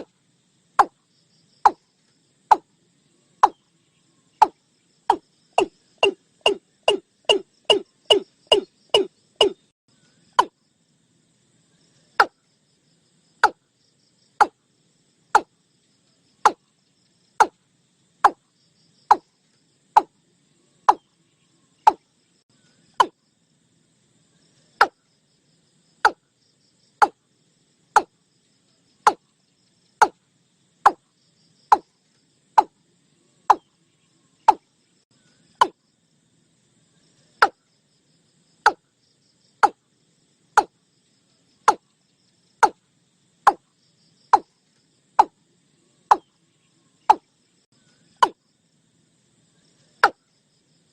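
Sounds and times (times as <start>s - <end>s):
bird calling hollow notes: 0.8s - 1.0s, 2.5s - 2.7s, 3.4s - 3.7s, 4.4s - 9.7s, 13.4s - 13.6s, 17.4s - 17.6s, 21.8s - 22.1s, 22.9s - 23.2s, 28.0s - 28.2s, 34.4s - 34.7s, 35.5s - 35.8s, 45.2s - 45.4s, 46.1s - 46.3s.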